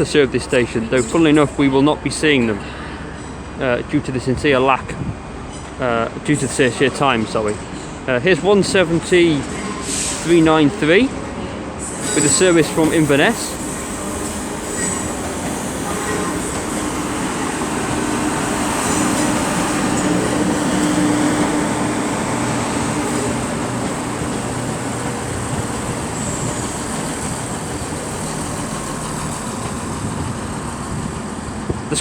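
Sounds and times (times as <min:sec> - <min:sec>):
train wheels on rails: 0:08.6 - 0:32.0
diesel engines humming: 0:12.0 - 0:32.0.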